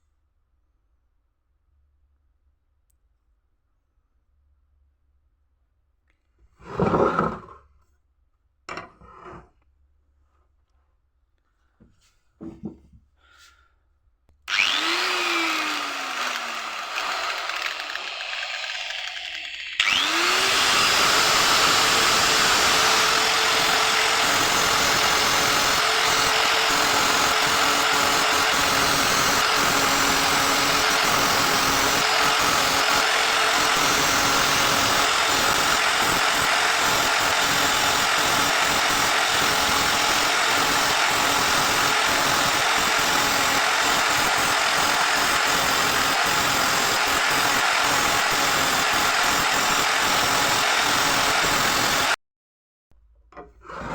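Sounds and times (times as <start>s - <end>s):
power tool motor spinning up: 14.5s - 52.2s.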